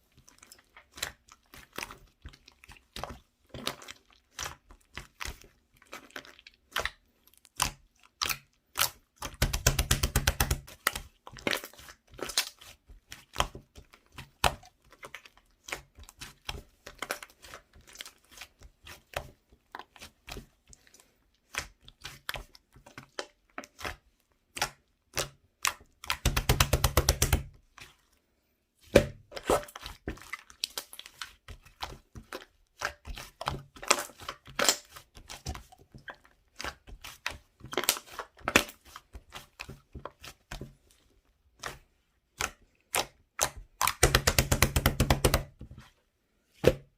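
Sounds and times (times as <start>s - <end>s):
slime squished by hand: 0.1s - 28.2s, 28.8s - 45.7s
rapid popping of slime: 6.1s - 20.5s, 21.4s - 27.6s, 28.9s - 40.8s, 41.6s - 45.7s.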